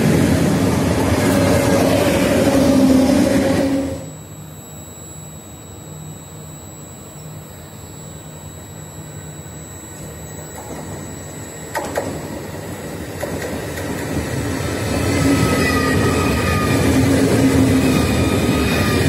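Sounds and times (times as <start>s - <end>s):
high-speed train approaching: 0.0s - 4.2s, 10.0s - 19.0s
steady low hum: 0.0s - 15.3s.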